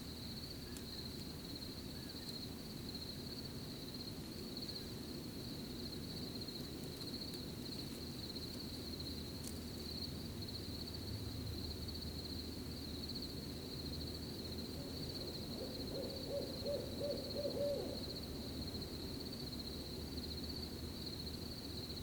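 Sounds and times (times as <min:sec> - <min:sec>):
crickets chirping: 0:00.0 - 0:22.0
owl hooting: 0:14.8 - 0:18.2.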